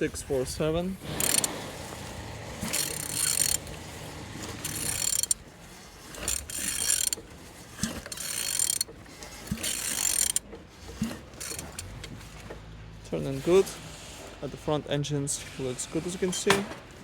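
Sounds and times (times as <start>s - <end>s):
ratchet wrench clicking: 1.0s - 1.7s, 2.6s - 3.8s, 4.6s - 5.4s, 6.1s - 7.2s, 7.8s - 8.9s, 9.5s - 10.4s, 11.4s - 11.9s.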